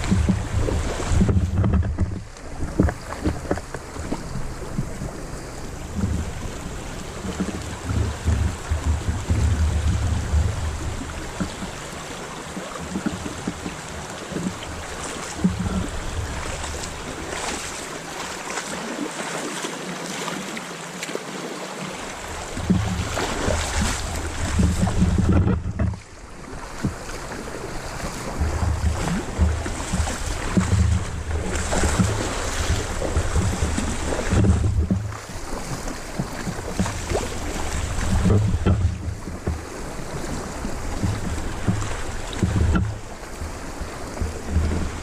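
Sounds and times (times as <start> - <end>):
wind buffeting microphone: 0.0 - 18.2, 22.1 - 45.0
running water rushing: 0.0 - 45.0
splashing crackles: 22.0 - 45.0.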